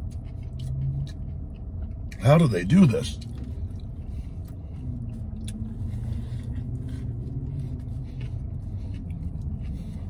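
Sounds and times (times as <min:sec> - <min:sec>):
faint chewing: 0:00.0 - 0:10.0
vehicle engine idling: 0:00.0 - 0:10.0.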